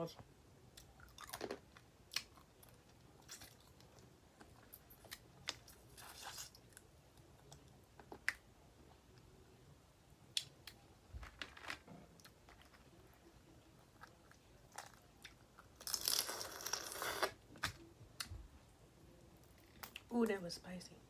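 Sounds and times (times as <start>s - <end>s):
soft chewing: 0.7s - 9.4s, 10.3s - 20.1s.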